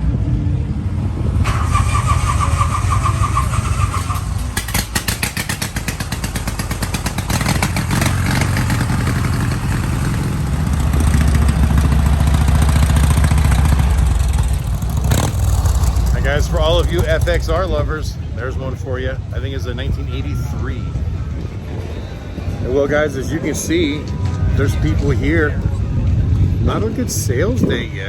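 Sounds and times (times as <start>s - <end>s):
motorcycle engines running: 0.0s - 28.0s
rapid engine pulses: 1.0s - 20.1s.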